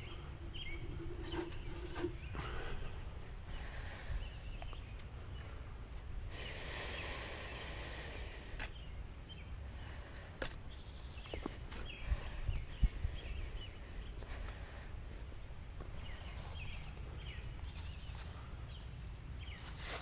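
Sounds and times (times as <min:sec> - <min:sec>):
wind rumble on microphone: 0:11.7 - 0:15.1.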